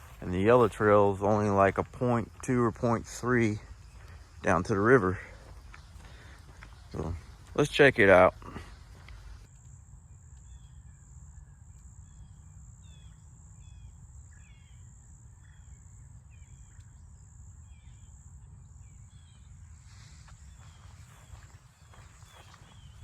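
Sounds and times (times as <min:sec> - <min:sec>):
bird chirping: 0:10.3 - 0:23.0.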